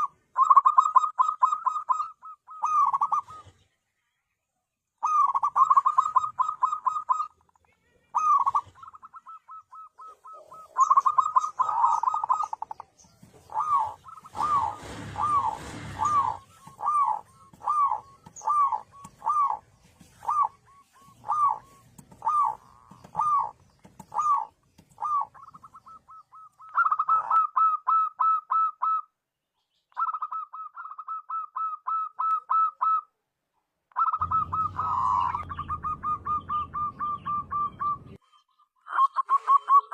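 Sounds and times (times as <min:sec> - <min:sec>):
dove cooing: 0:00.0 - 0:03.6, 0:05.0 - 0:07.5, 0:08.1 - 0:29.1, 0:30.0 - 0:33.0, 0:34.0 - 0:38.2, 0:38.9 - 0:39.9
rustling noise: 0:13.0 - 0:25.0.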